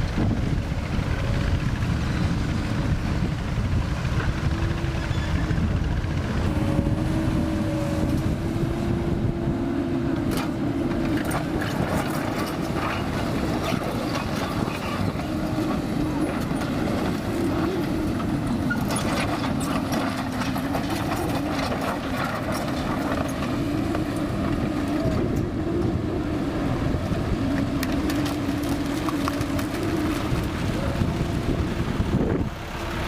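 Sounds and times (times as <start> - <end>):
excavator engine rumbling: 0.0 - 33.0
hydraulic whine: 4.2 - 22.1.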